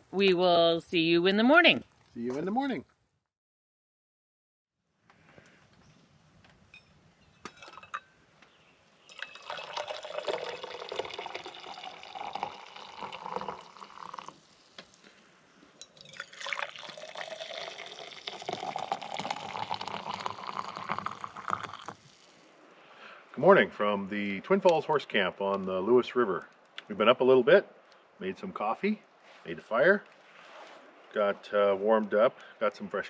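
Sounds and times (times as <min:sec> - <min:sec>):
liquid pouring into container: 0:09.1 - 0:14.6, 0:16.0 - 0:22.4.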